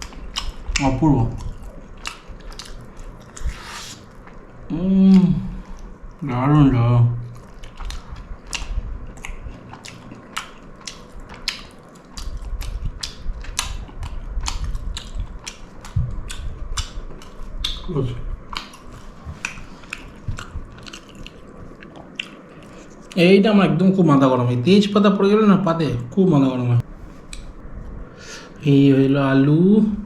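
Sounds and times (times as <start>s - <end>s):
person chewing food: 1.4s - 6.2s, 7.3s - 17.8s, 18.4s - 23.2s.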